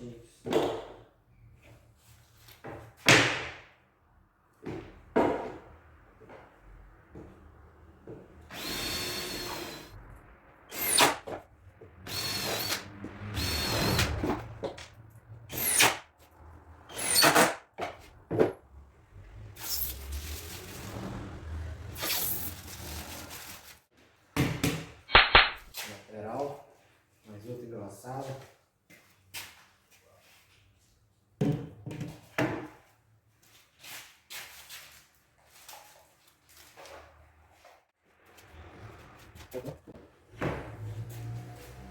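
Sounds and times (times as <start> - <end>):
power drill driving screws: 8.5 - 9.9, 10.7 - 11.2, 12.0 - 14.3, 15.5 - 16.0.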